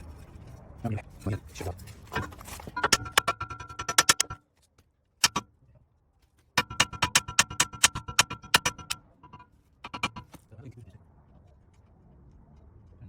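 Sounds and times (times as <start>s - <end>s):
ratchet wrench clicking: 6.6s - 10.3s.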